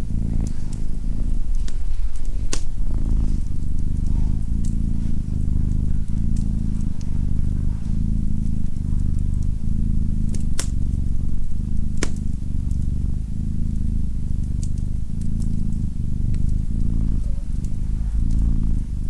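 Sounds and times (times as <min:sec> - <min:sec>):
cat purring: 0:00.0 - 0:19.0
wood fire crackling: 0:00.0 - 0:19.0.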